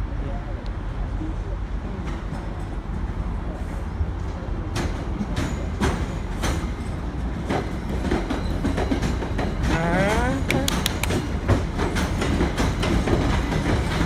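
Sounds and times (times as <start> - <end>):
train rumbling on track: 0.0 - 14.0.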